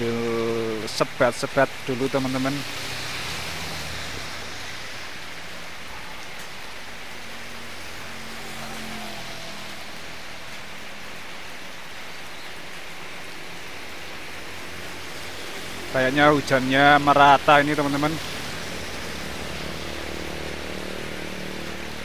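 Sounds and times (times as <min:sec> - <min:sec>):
rain on wet road: 0:00.0 - 0:22.0.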